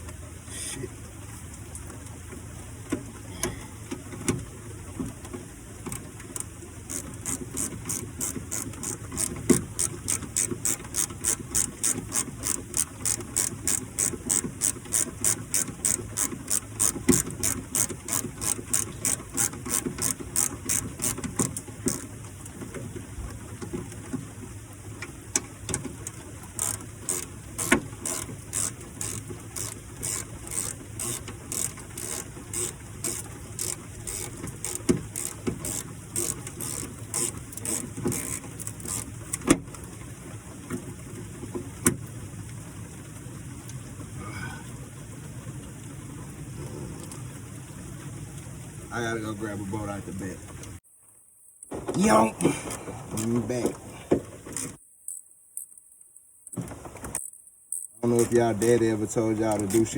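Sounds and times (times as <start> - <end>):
ratchet wrench clicking: 6.9 - 22.1, 26.6 - 39.1.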